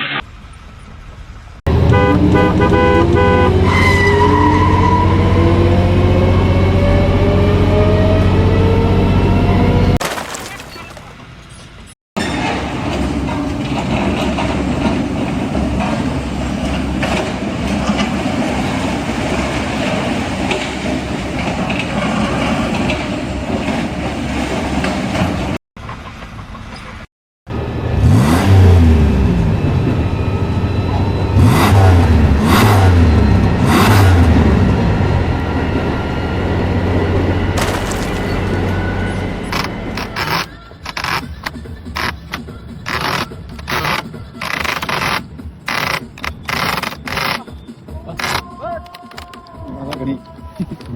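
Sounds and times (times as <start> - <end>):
mechanical engine rumble: 0.2 - 3.8, 27.5 - 48.5
heavy engine revving: 1.6 - 10.0, 27.5 - 47.5.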